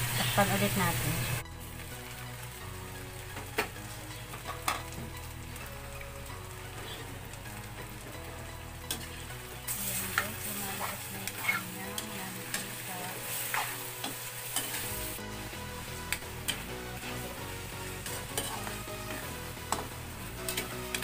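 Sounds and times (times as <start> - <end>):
chicken sizzling in a wok: 0.0 - 21.0
metal spoon scraping a pan: 8.9 - 15.2, 16.1 - 17.3, 17.9 - 21.0.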